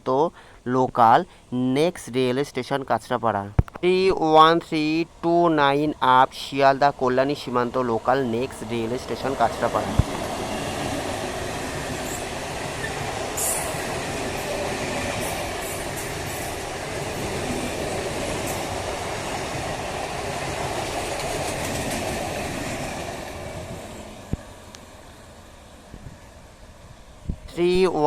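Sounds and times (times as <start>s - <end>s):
train wheels clattering over rails: 7.4s - 25.4s.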